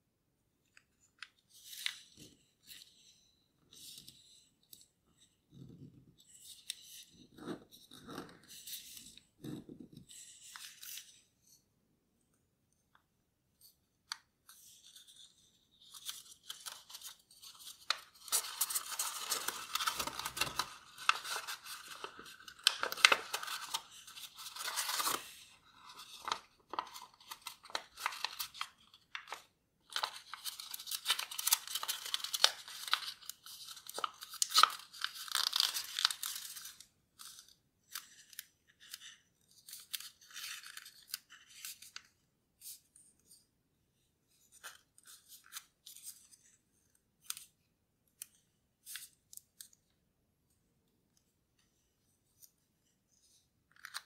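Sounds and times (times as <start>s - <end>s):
paper rustling as it is folded: 1.2s - 4.9s, 14.4s - 43.4s.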